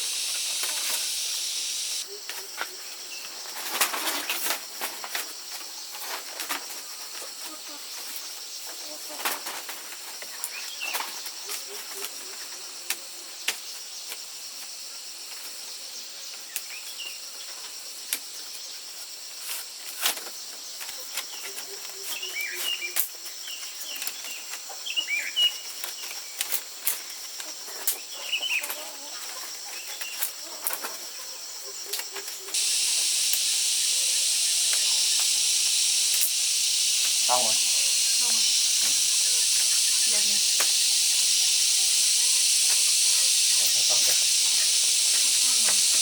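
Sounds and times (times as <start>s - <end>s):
short chirping calls: 0.0s - 2.0s, 32.5s - 46.0s
loud steady hiss: 0.0s - 2.1s, 32.5s - 46.0s
steady high hiss: 0.0s - 2.1s, 32.5s - 46.0s
sharp clicks and taps: 32.6s - 46.0s.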